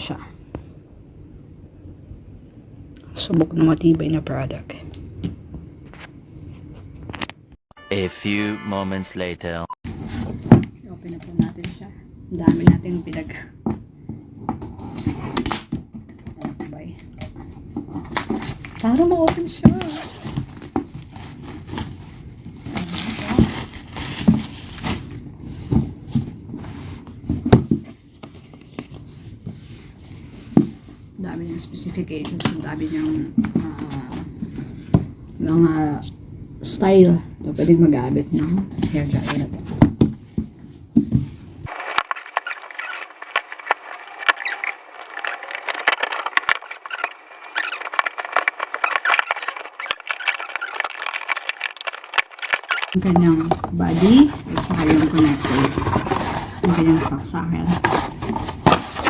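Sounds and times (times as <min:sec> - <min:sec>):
wrapping crinkling: 0:17.7 - 0:25.3, 0:41.7 - 0:57.2
packaging crackling: 0:41.7 - 0:53.6.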